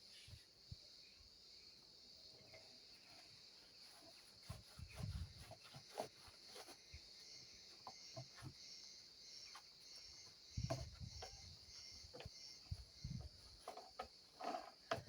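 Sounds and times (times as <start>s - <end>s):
scrubbing plastic: 3.2s - 8.6s, 9.5s - 15.0s
handling knocks and thumps: 10.4s - 15.0s.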